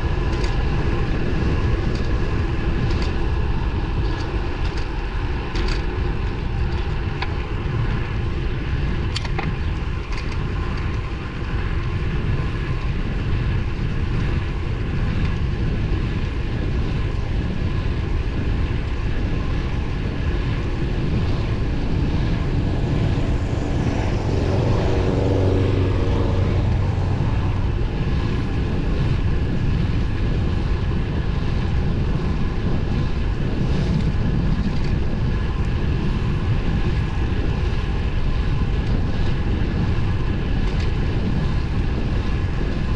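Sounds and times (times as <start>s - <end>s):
bike road noise: 0.0s - 42.9s
wind rush: 0.0s - 42.9s
motor vehicle passing: 20.2s - 30.3s.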